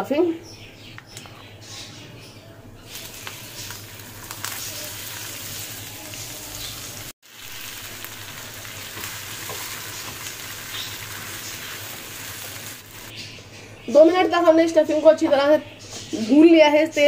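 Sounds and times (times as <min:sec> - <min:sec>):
stuffing sizzling in hot oil: 0:02.9 - 0:13.1.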